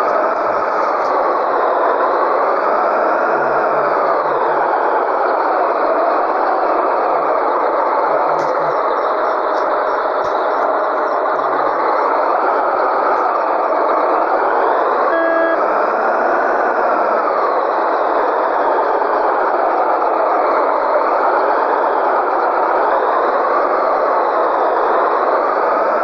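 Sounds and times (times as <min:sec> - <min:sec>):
diesel truck engine running: 0:00.0 - 0:26.0
short beep: 0:15.1 - 0:15.6.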